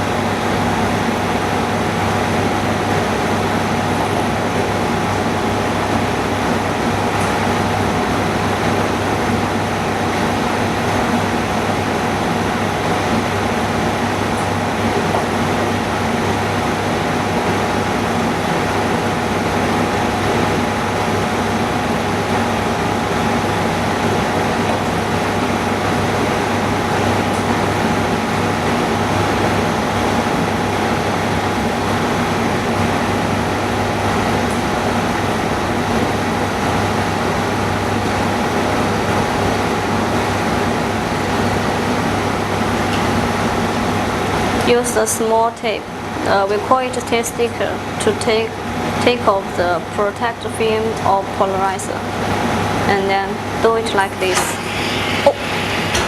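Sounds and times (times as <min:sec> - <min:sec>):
mechanical equipment hum: 0:51.9 - 0:56.0.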